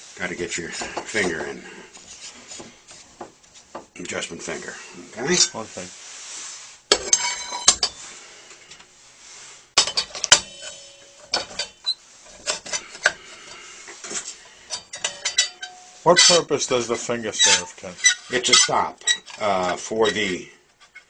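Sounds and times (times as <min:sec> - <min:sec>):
metal clinks and knocks: 0:09.8 - 0:13.2, 0:14.0 - 0:16.4.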